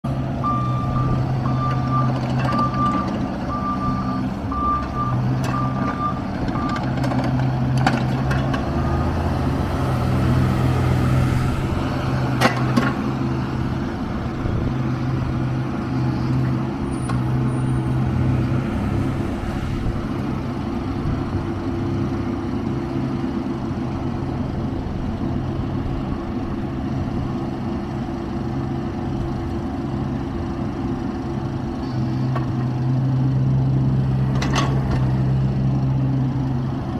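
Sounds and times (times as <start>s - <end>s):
excavator diesel engine running: 0.1s - 36.9s
travel alarm beeping: 0.4s - 6.8s.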